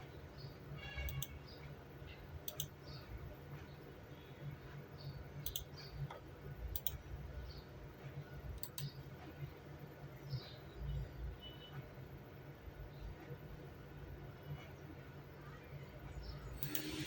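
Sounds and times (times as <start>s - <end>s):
sharp clicks in pairs: 2.5s - 2.8s, 5.4s - 7.0s, 8.6s - 8.9s.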